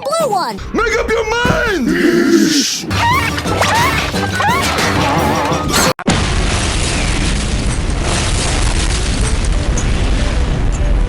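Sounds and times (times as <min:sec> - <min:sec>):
explosion with deep rumble: 0:06.0 - 0:11.0.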